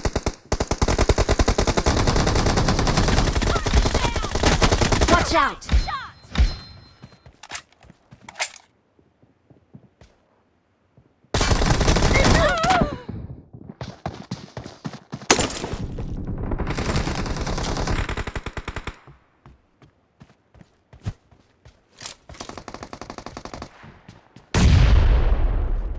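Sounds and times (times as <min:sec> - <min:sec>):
rapid automatic gunfire: 0:00.0 - 0:05.3, 0:11.4 - 0:12.5, 0:16.1 - 0:19.0, 0:22.4 - 0:23.7.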